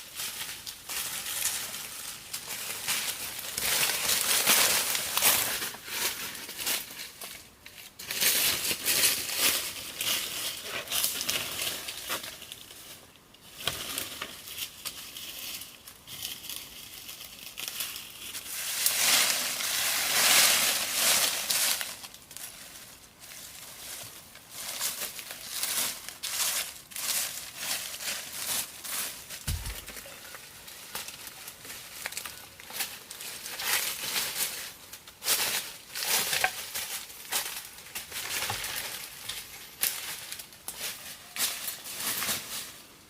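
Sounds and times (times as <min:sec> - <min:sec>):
crackling and rustling: 0:00.0 - 0:43.0.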